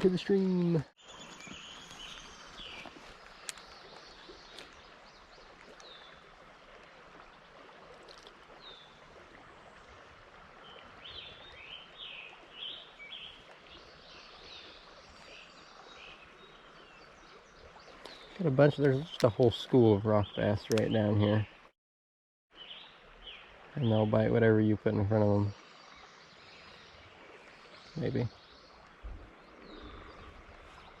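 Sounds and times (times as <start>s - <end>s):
small birds chirping: 0.0s - 6.3s, 9.8s - 21.6s, 22.5s - 31.0s
river water flowing: 0.0s - 21.7s, 22.5s - 31.0s
light clicks: 20.6s - 21.0s.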